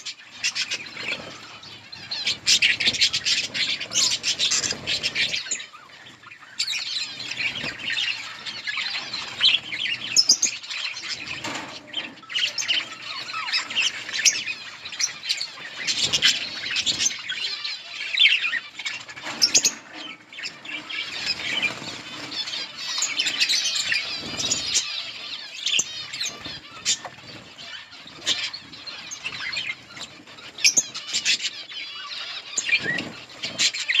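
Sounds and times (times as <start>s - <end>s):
budgerigars chirping: 0.0s - 34.0s.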